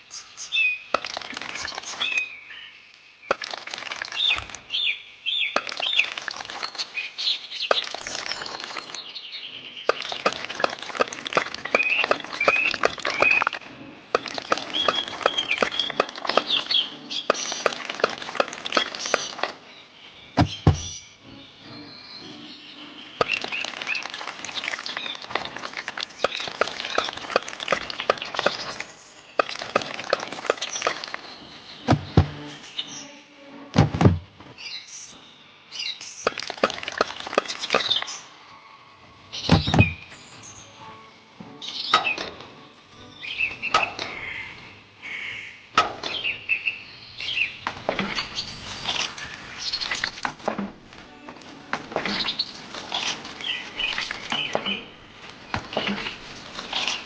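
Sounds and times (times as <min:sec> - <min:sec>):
birds chirping: 0:00.0 - 0:57.0
small clicks of miniature bricks: 0:00.9 - 0:02.2, 0:03.3 - 0:04.6, 0:05.6 - 0:06.8, 0:14.2 - 0:19.6, 0:36.3 - 0:38.1.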